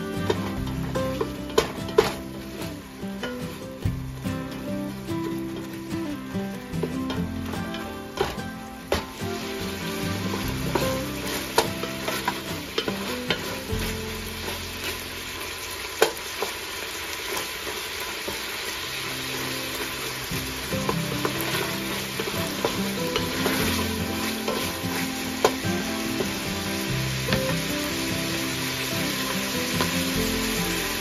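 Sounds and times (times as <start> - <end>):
sausage sizzling in oil: 0.0 - 31.0
wooden spatula scraping a pot: 7.0 - 15.1, 20.6 - 28.0.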